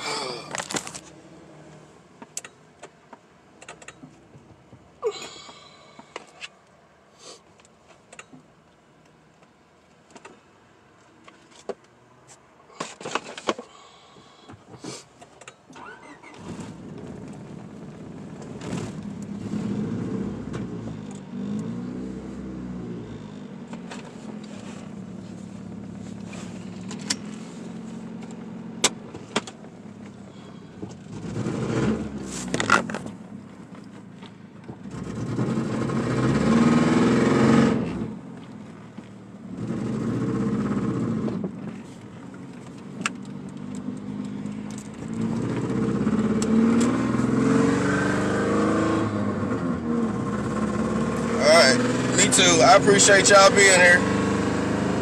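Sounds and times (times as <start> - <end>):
handling clicks and rustles: 0.4 - 1.2, 7.4 - 13.7, 23.6 - 31.2, 32.2 - 34.9, 41.4 - 45.7
car engine revving: 15.9 - 33.7, 34.7 - 55.0.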